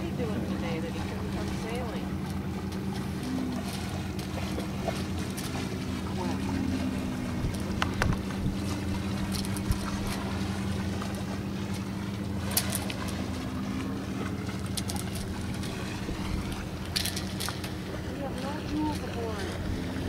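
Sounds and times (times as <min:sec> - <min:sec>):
steady low hum: 0:00.0 - 0:20.0
wind on microphone: 0:06.1 - 0:10.6, 0:15.2 - 0:17.0
sharp clicks and knocks: 0:07.8 - 0:08.4.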